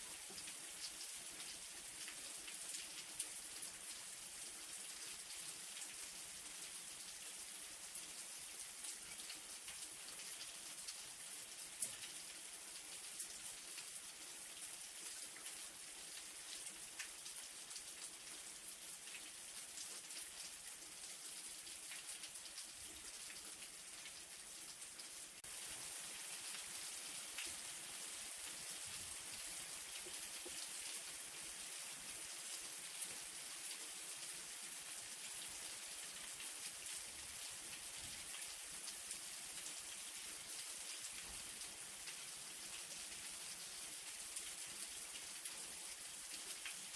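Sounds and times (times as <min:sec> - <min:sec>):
light rain falling: 0:00.0 - 0:46.9.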